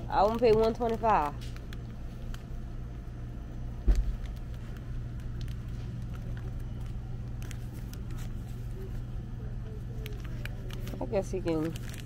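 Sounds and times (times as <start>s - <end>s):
low hum: 0.0s - 12.0s
faint clicks and rustles: 3.9s - 12.0s.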